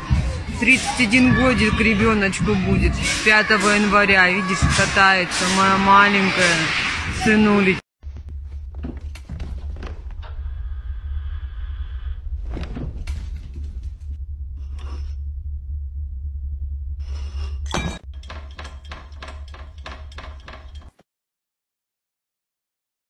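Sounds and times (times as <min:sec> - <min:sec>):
deep rumble: 0:00.0 - 0:20.2
clattering knocks and crashes: 0:17.7 - 0:21.0.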